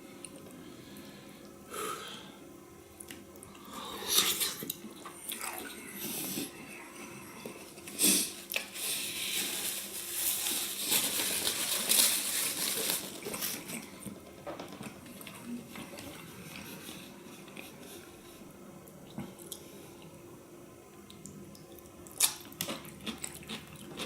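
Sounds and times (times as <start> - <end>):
wet chewing and mouth sounds: 21.1 - 24.0.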